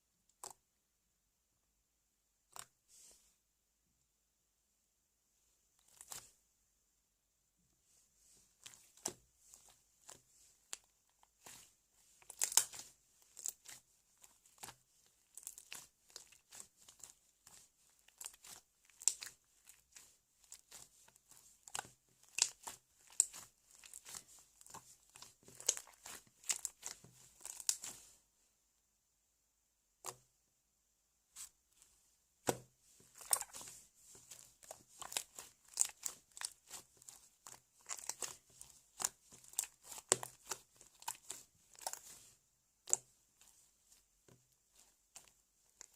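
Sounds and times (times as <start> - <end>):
slime sticky clicks and crackles: 12.2 - 28.0, 33.1 - 43.5.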